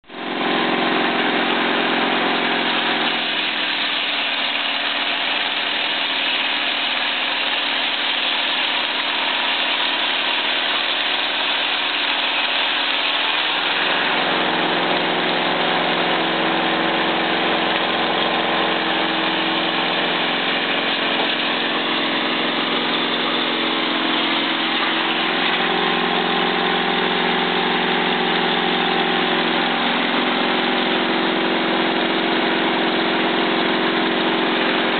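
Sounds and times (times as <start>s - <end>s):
air-cooled engine running: 0.0s - 34.9s
circular saw cutting boards: 0.1s - 34.9s.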